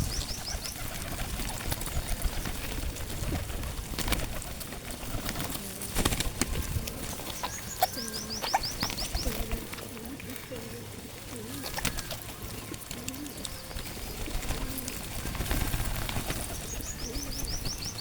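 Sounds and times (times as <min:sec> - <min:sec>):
pigeons cooing: 0:00.0 - 0:18.0
small bird chirping: 0:07.1 - 0:09.6, 0:16.2 - 0:18.0.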